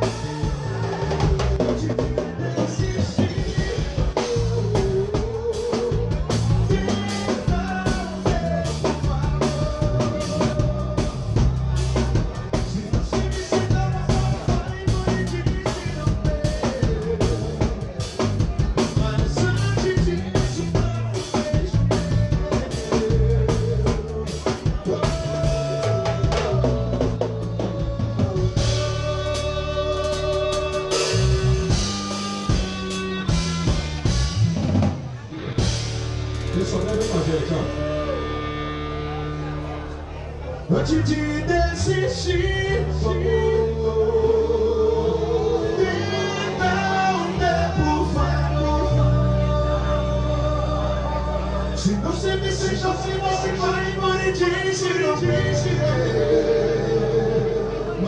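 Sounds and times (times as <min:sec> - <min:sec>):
drum kit beat: 0:00.0 - 0:38.2
band playing instrumental: 0:00.0 - 0:58.0
heavy bass line: 0:00.0 - 0:58.0.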